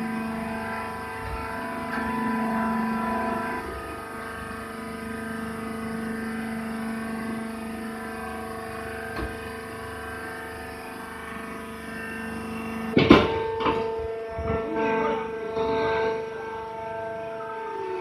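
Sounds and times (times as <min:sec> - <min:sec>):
baler motor droning hum: 0:00.0 - 0:18.0
loud metallic clank: 0:13.0 - 0:15.9.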